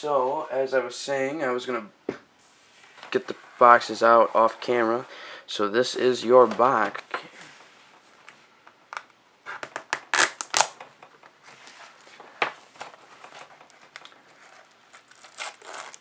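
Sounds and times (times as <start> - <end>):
plastic wrap crinkling and tearing: 9.6 - 10.8, 11.8 - 16.0.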